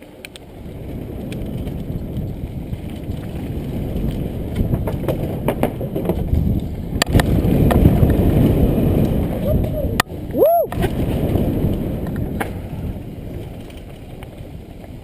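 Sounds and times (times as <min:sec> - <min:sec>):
bike tyre rumble: 0:00.0 - 0:15.0
wind buffeting microphone: 0:00.0 - 0:15.0
bike knocks and rattles: 0:00.3 - 0:09.4.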